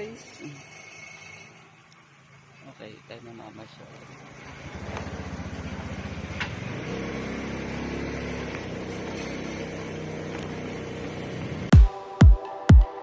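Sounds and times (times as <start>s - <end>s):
car engine running: 1.5s - 11.7s
deep electronic kick drum: 11.7s - 13.0s.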